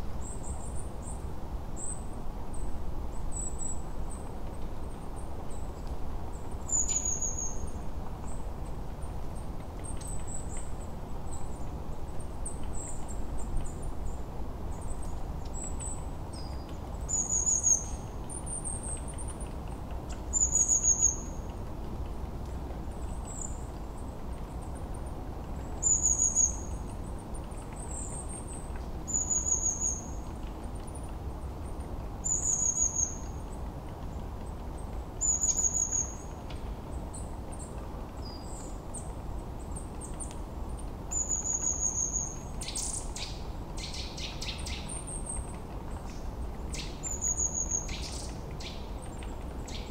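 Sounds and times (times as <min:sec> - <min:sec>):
small bird chirping: 0:06.7 - 0:08.4, 0:29.1 - 0:30.2, 0:32.2 - 0:33.4, 0:35.2 - 0:36.2, 0:41.1 - 0:45.4, 0:46.0 - 0:49.9.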